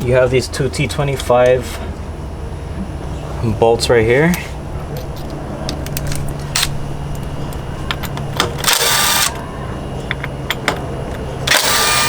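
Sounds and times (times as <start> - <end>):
power driver motor whine: 4.7 - 12.0
metal parts clicking: 4.9 - 9.4.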